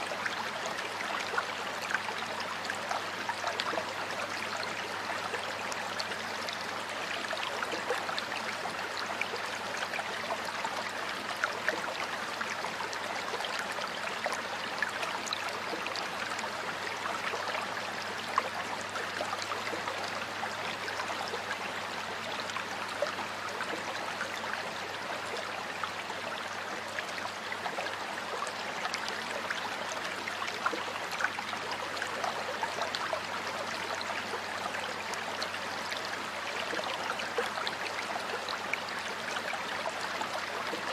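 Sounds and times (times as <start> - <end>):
stream water flowing: 0.0 - 40.9.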